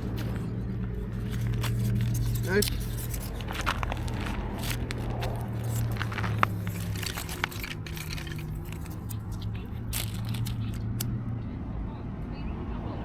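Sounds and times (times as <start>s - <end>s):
dry sticks clicking and snapping: 0.0s - 11.2s
low hum: 0.0s - 13.0s.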